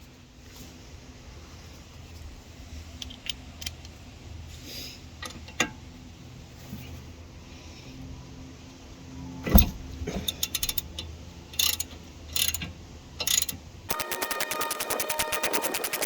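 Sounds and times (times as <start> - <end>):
socket ratchet clicking: 10.3 - 12.6, 13.2 - 16.0.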